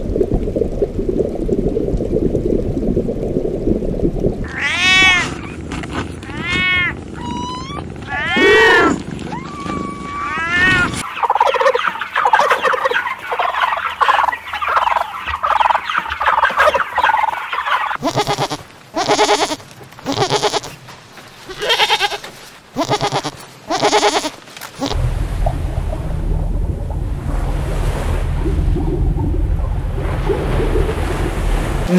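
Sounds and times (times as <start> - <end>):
cat meowing: 4.5 - 5.4, 6.2 - 11.0
turkey gobbles: 10.4 - 20.6
turkeys clucking and yelping: 10.9 - 18.0
low rushing noise: 25.0 - 31.9.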